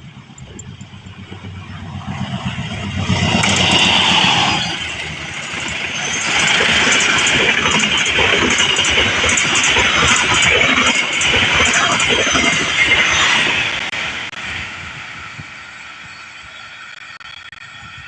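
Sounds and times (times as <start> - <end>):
wheels clattering on rails: 0.0 - 14.3
train passing at speed: 0.0 - 17.0.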